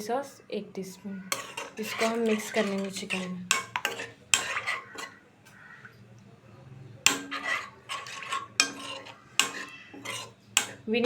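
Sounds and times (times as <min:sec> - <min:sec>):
spoon scraping a pan: 0:01.2 - 0:05.9, 0:07.0 - 0:11.0.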